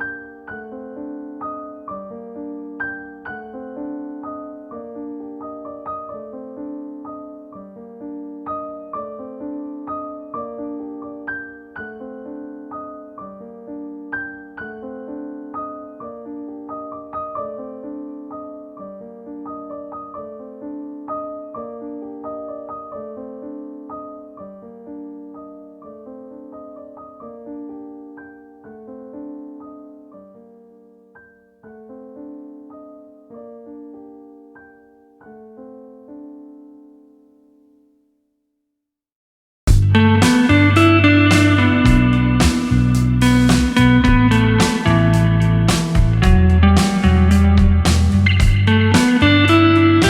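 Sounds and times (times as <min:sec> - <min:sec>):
soft piano music: 0:00.0 - 0:38.3, 0:39.7 - 0:50.0.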